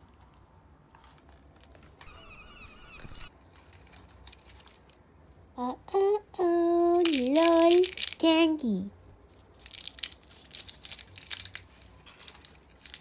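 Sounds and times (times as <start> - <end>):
paper and foil wrapper crinkling: 0.9 - 2.1, 3.3 - 5.0, 7.0 - 8.3, 9.3 - 13.0.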